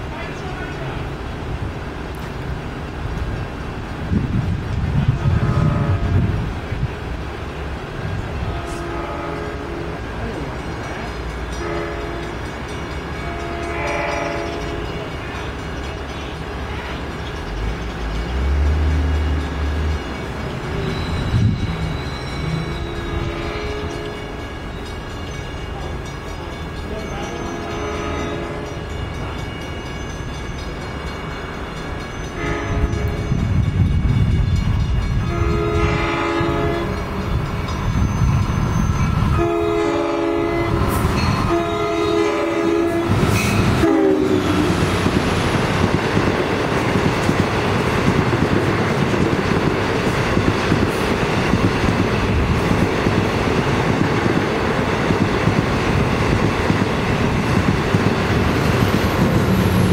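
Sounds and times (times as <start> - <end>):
train passing at speed: 0.0 - 59.9
train horn blasts: 5.1 - 6.4, 8.4 - 10.0, 11.6 - 12.5, 13.2 - 15.2, 20.8 - 24.7, 27.5 - 28.9, 32.3 - 33.6, 35.1 - 37.1, 39.3 - 45.0.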